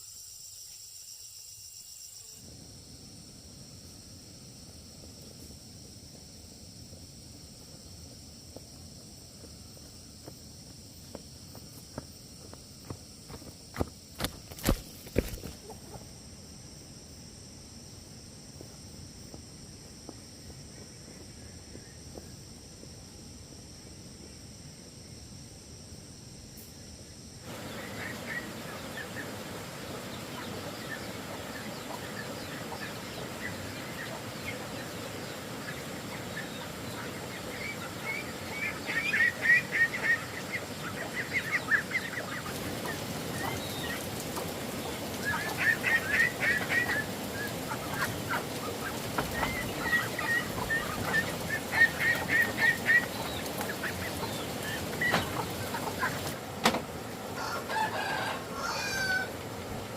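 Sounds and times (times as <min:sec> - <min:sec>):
outdoor background noise: 0:00.0 - 0:59.9
poultry calling: 0:27.5 - 0:44.1, 0:45.2 - 0:56.4, 0:57.4 - 0:59.4.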